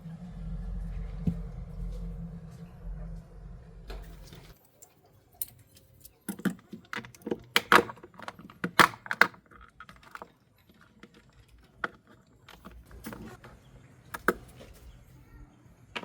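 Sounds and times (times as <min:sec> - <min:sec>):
low hum: 0:00.0 - 0:04.6.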